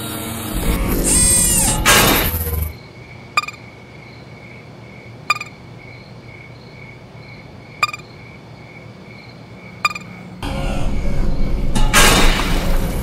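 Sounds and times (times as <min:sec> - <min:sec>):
short electronic beeps: 0:03.4 - 0:03.6, 0:05.3 - 0:05.6, 0:07.8 - 0:08.0, 0:09.9 - 0:10.1
faint warbling tone: 0:05.3 - 0:05.5.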